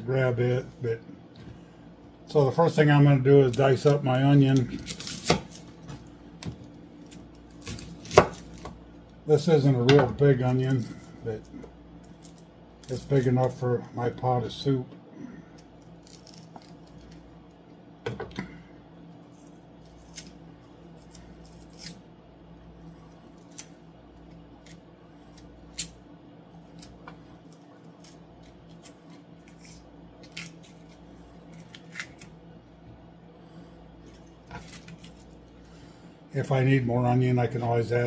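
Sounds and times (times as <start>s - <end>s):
steady low hum: 0.0s - 38.0s
knife chopping on cutting board: 7.6s - 8.8s.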